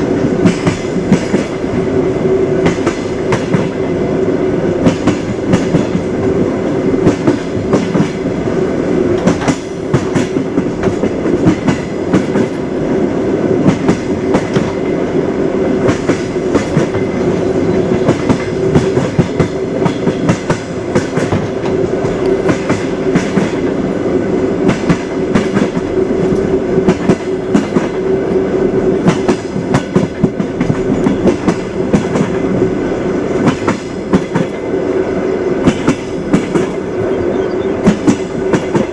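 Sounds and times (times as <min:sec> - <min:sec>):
train wheels knocking over rails: 0:00.1 - 0:01.8, 0:02.6 - 0:03.8, 0:04.8 - 0:12.7, 0:13.6 - 0:15.2, 0:15.8 - 0:23.8, 0:24.6 - 0:28.0, 0:29.0 - 0:32.6, 0:33.4 - 0:34.7, 0:35.6 - 0:36.8, 0:37.8 - 0:38.9.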